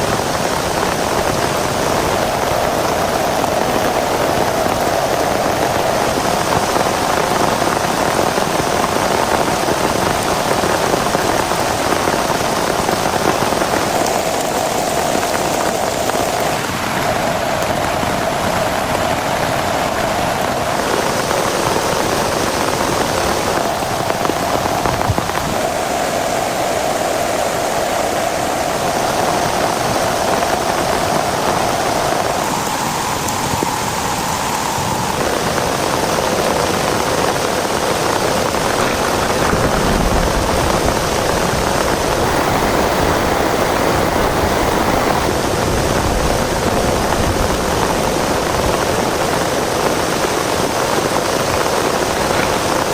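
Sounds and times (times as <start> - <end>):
heavy rain hissing: 0.0 - 17.7, 42.2 - 45.3.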